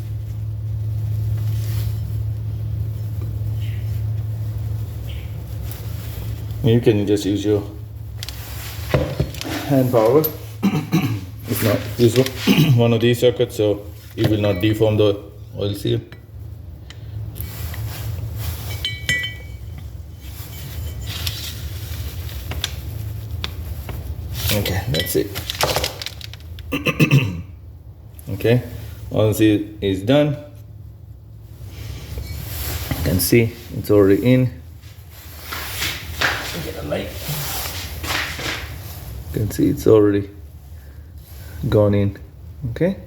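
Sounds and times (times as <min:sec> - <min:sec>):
steady low hum: 0:00.0 - 0:43.0
faint handling noises: 0:07.8 - 0:10.6, 0:11.4 - 0:13.1, 0:16.1 - 0:26.7.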